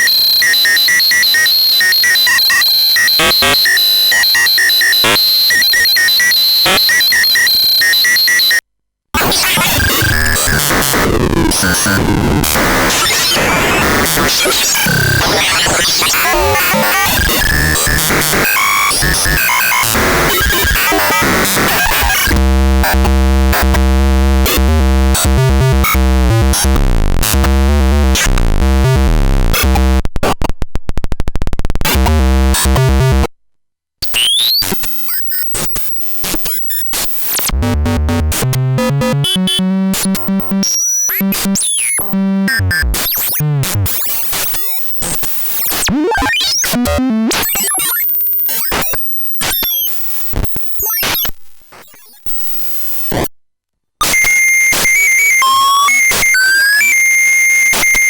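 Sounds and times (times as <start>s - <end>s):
harsh synthesized noise: 9.2s - 30.5s, 31.8s - 33.3s, 37.1s - 43.8s.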